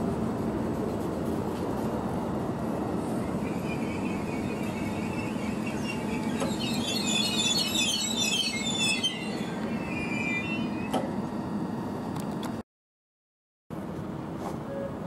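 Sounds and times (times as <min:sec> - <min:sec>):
train low rumble: 0:00.0 - 0:12.6, 0:13.7 - 0:15.0
brakes and wheels squealing: 0:03.0 - 0:11.5.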